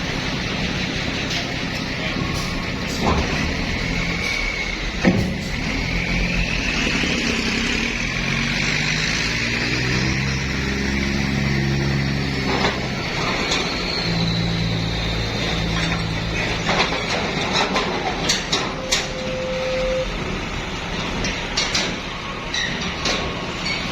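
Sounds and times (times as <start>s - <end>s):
diesel bus engine running: 0.0s - 23.9s
road or machine noise: 0.0s - 23.9s
brief steady tone: 18.8s - 20.2s.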